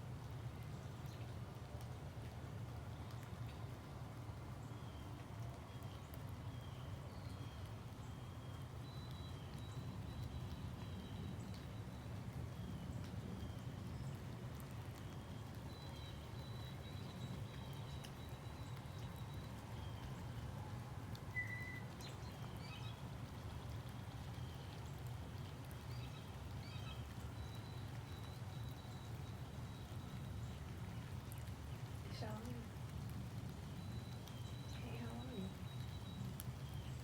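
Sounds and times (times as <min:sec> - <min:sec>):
faint bird chirps: 0:21.3 - 0:23.0, 0:33.8 - 0:37.0.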